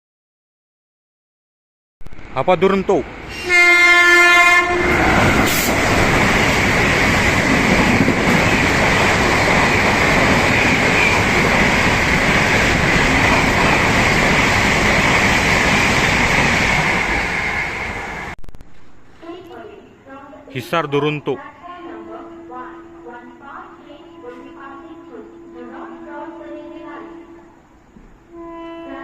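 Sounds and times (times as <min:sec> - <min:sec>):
train wheels rushing on rails: 0:03.0 - 0:18.4
train horn: 0:03.3 - 0:05.8, 0:22.0 - 0:29.0.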